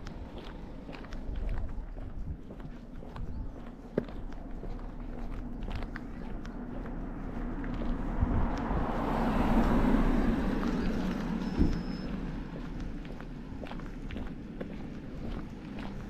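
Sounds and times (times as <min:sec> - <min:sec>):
vehicle passing by: 0:03.2 - 0:16.0.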